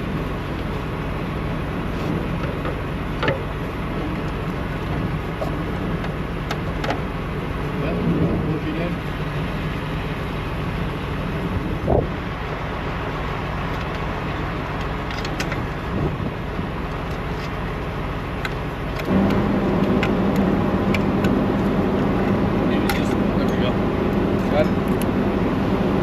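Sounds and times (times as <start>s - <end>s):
truck diesel engine idling: 8.6s - 26.0s.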